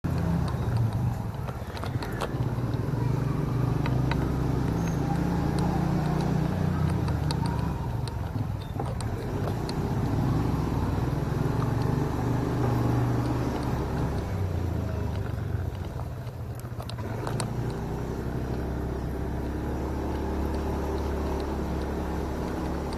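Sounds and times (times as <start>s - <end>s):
motorcycle engine revving: 0.0s - 22.9s
light clicks: 0.1s - 22.9s.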